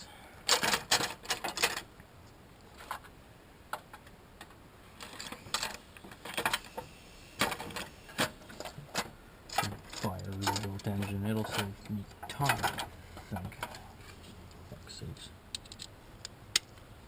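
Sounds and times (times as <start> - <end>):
metal tools clicking and clinking: 8.6 - 13.8.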